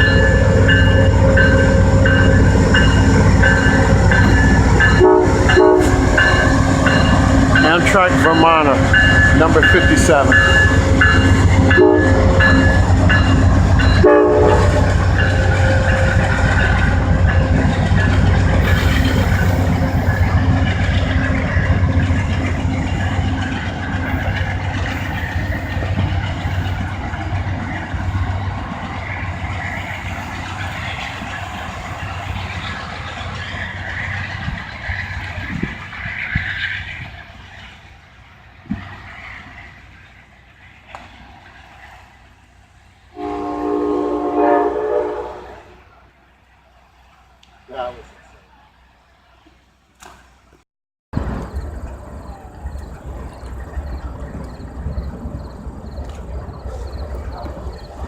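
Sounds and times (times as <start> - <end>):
train cars rolling: 0.0 - 50.6, 51.2 - 58.0
diesel locomotive engine rumble: 0.0 - 58.0
train horn: 4.9 - 6.8, 7.4 - 12.6, 14.0 - 16.3, 43.1 - 45.9.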